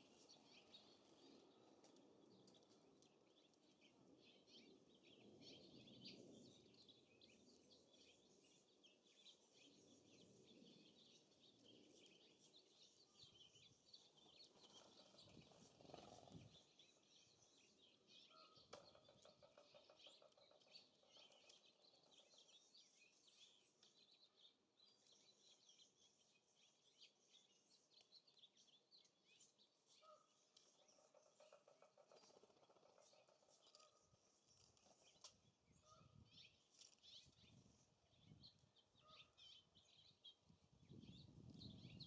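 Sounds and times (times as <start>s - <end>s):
songbirds chirping: 0.0s - 42.0s
wind gust on microphone: 40.5s - 42.0s.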